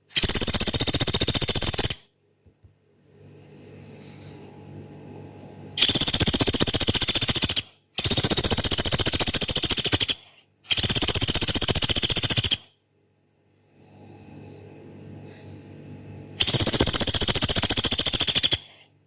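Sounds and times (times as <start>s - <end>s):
woodpecker harsh rattles: 0.0s - 2.0s, 5.8s - 12.7s, 16.4s - 18.8s.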